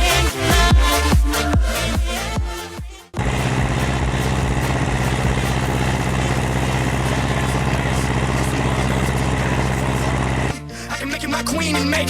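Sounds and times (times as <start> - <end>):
tractor diesel engine running: 3.2 - 10.6.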